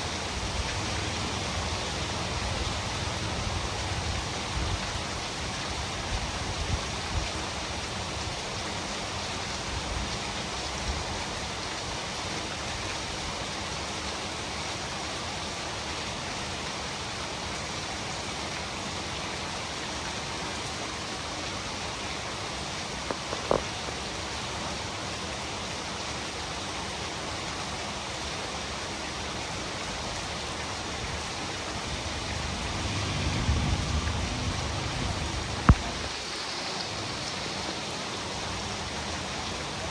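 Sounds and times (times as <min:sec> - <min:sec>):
steady rain falling: 0:00.0 - 0:39.9
low rumble: 0:31.7 - 0:36.1.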